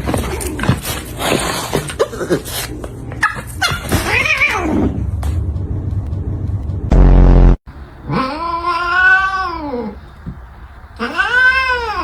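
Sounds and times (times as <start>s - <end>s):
cat and dog yelps and whines: 0.0s - 5.0s, 8.1s - 10.0s, 11.0s - 12.0s.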